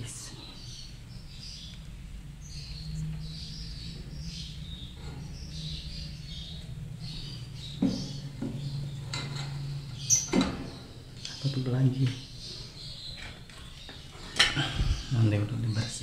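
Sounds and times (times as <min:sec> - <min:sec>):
lovebirds chirping: 0:00.0 - 0:16.0
steady low hum: 0:00.0 - 0:16.0
knocks: 0:07.8 - 0:08.6.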